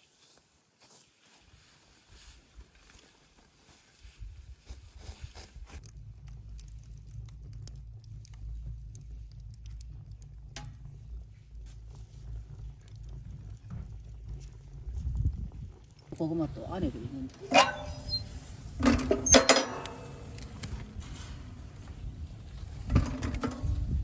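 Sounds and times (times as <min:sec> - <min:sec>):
bonfire crackling and popping: 0:04.9 - 0:24.0
low rumble: 0:05.8 - 0:24.0.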